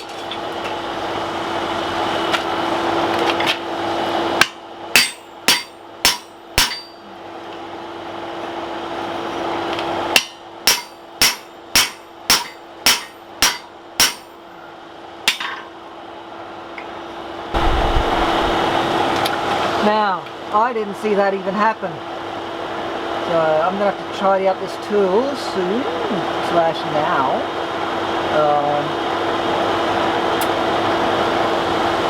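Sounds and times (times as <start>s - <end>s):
hammer striking steel on anvil: 4.4s - 7.1s, 10.1s - 14.4s, 15.2s - 15.6s
steady hum: 4.4s - 7.2s, 9.7s - 15.6s, 17.3s - 19.9s.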